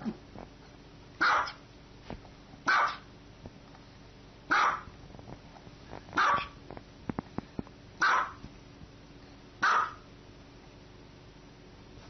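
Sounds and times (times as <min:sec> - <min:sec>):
small dog barking: 0:01.2 - 0:01.6, 0:02.7 - 0:03.1, 0:04.5 - 0:04.9, 0:06.2 - 0:06.6, 0:08.0 - 0:08.4, 0:09.6 - 0:10.1.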